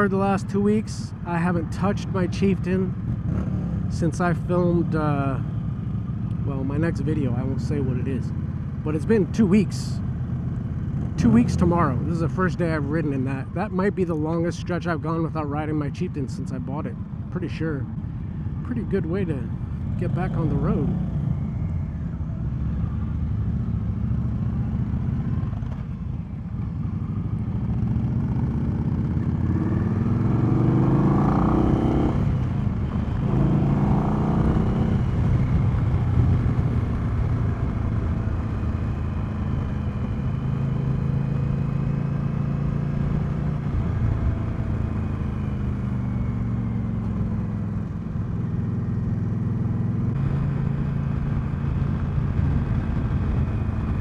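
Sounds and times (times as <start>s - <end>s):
motorcycle engine accelerating: 2.9s - 13.0s, 18.9s - 54.0s.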